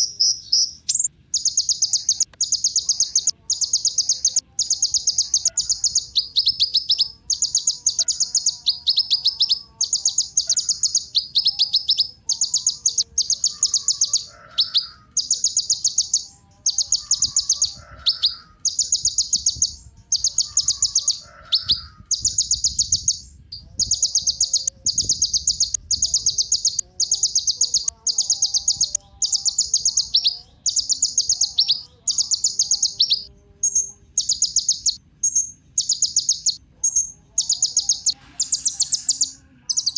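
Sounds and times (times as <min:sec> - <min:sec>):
bird singing trilled phrases: 0:00.0 - 0:39.9.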